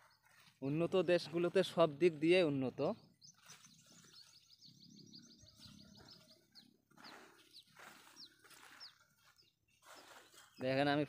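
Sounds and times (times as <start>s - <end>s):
high bird chirps: 2.8s - 11.0s
soft rustling: 6.9s - 10.7s.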